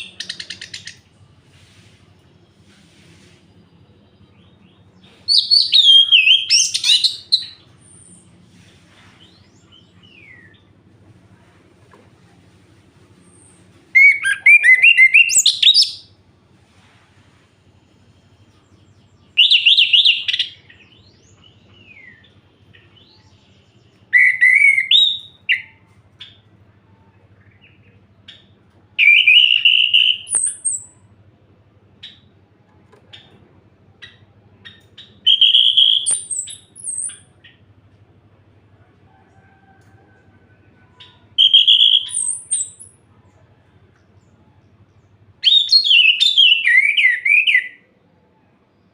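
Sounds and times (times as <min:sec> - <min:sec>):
thrush singing whistled phrases: 0:05.3 - 0:07.6, 0:14.0 - 0:16.1, 0:29.0 - 0:31.0, 0:35.2 - 0:37.4, 0:41.4 - 0:42.8, 0:45.4 - 0:47.8.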